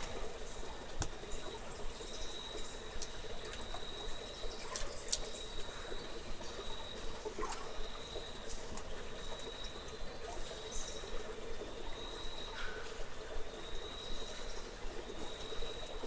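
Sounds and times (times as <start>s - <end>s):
running water: 0.0s - 16.0s
water dripping: 0.0s - 16.0s.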